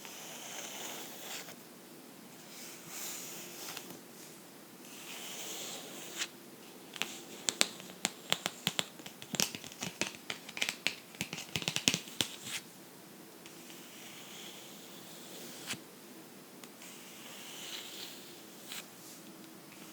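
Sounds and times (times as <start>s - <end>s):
tapping on a book: 7.0s - 12.5s
scratching on a book: 7.0s - 12.6s, 16.8s - 18.9s.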